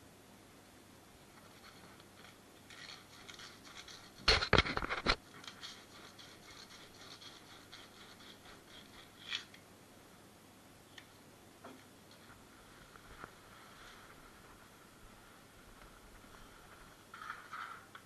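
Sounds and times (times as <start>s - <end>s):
scraping strokes on pipe: 1.5s - 9.5s.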